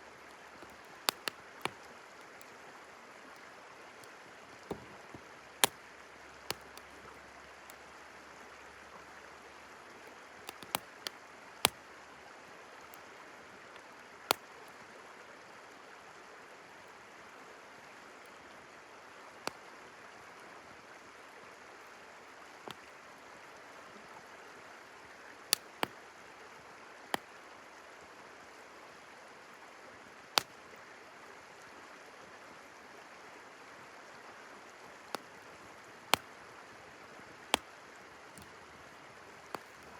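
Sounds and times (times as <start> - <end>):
river flowing: 0.0 - 39.9
campfire crackling and popping: 0.2 - 2.5, 4.0 - 5.8, 6.4 - 7.8, 10.4 - 11.9, 22.7 - 22.9, 25.5 - 26.0, 35.1 - 36.4, 37.3 - 39.9.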